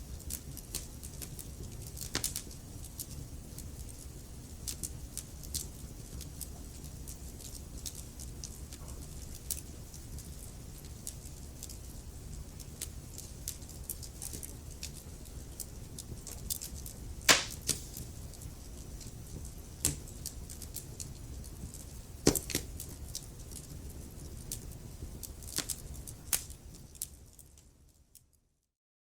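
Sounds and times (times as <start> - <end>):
low rumble of burning: 0.0 - 28.6
wood fire crackling: 0.1 - 28.3
sharp fire pops: 17.3 - 18.2.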